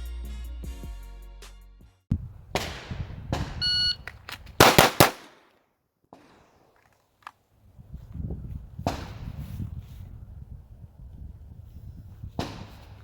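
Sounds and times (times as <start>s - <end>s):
shot timer beep: 3.6s - 4.0s
pistol shots: 4.6s - 5.5s.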